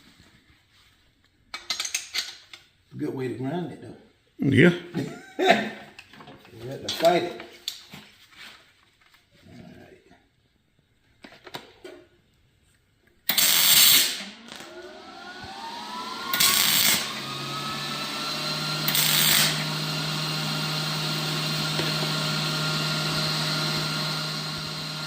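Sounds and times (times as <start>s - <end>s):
harsh motor bursts: 13.3s - 25.0s
power tool motor whine: 13.3s - 25.0s.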